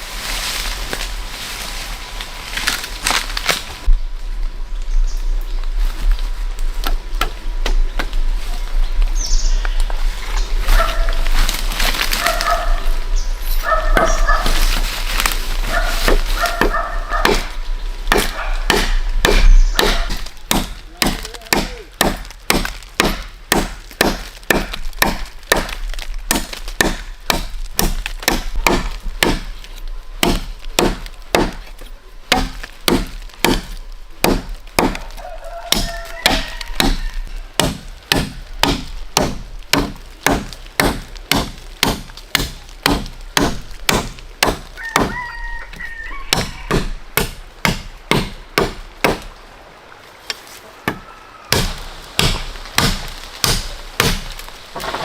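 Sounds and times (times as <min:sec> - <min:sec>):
rhythmic chopping into wood: 0:16.1 - 0:29.6, 0:30.2 - 0:35.1, 0:35.7 - 0:37.0, 0:37.6 - 0:45.2, 0:46.3 - 0:49.3, 0:50.9 - 0:55.0.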